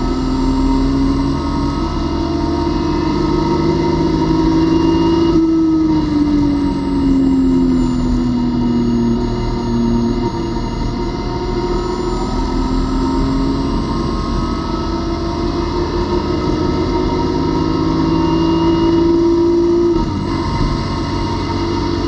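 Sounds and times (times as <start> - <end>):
race car engine accelerating: 0.0 - 22.0.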